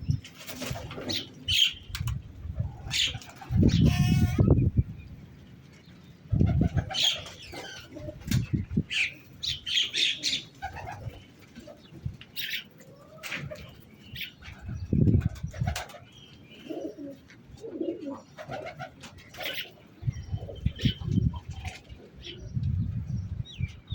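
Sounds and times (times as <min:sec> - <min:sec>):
wings flapping: 0:00.2 - 0:03.8, 0:10.4 - 0:13.8, 0:14.4 - 0:16.0
pigeons cooing: 0:02.6 - 0:04.6, 0:06.3 - 0:22.7
small birds chirping: 0:02.8 - 0:23.9.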